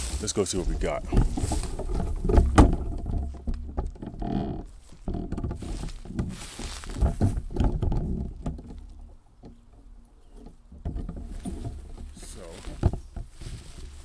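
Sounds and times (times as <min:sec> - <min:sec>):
footsteps on outdoor ground: 0:00.0 - 0:02.5, 0:04.6 - 0:07.6, 0:11.2 - 0:14.0.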